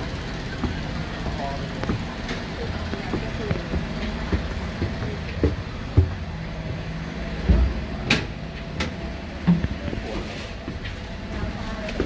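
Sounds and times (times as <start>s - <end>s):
train carriage rumbling and rattling: 0.0s - 12.0s
heavy knocks: 3.0s - 6.8s.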